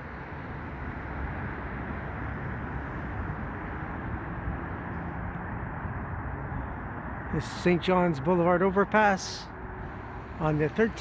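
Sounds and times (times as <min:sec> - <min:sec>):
low rumble of vehicles: 0:00.0 - 0:11.0.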